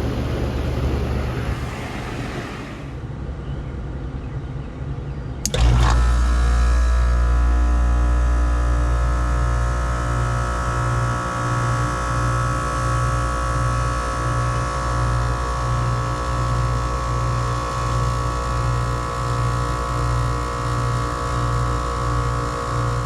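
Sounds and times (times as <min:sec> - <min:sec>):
throbbing low drone: 0:00.0 - 0:03.2
air conditioner compressor and fan hum: 0:00.0 - 0:05.4, 0:07.7 - 0:23.0.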